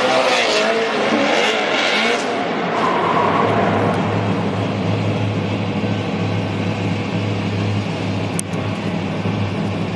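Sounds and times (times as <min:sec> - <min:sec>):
car engine running: 0:03.4 - 0:09.9.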